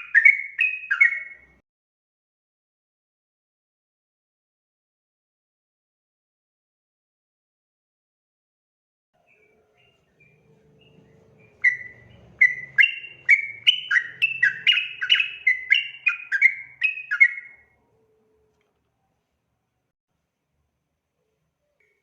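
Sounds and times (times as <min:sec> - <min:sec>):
bird song bubbly chirping: 0:00.0 - 0:01.5, 0:09.3 - 0:17.7.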